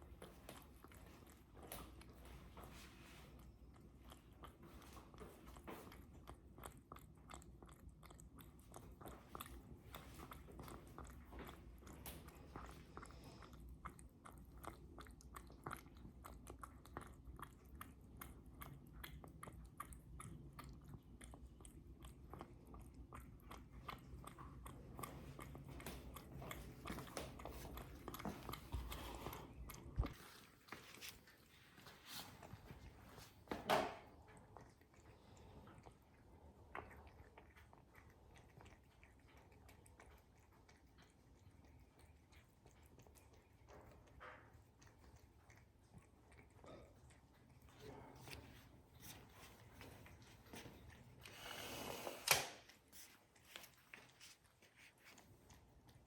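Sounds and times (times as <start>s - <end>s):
cat chewing crunchy food: 0.0s - 56.0s.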